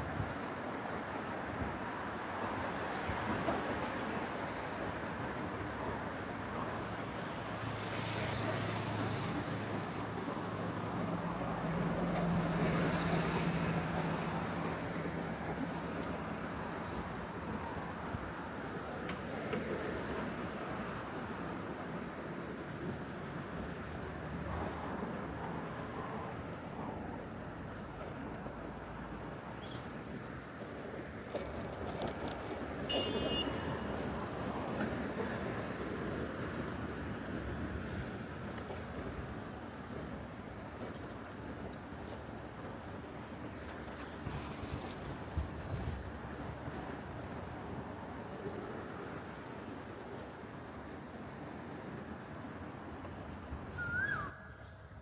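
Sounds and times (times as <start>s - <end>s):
passing vehicles: 6.8s - 18.6s, 31.0s - 55.0s.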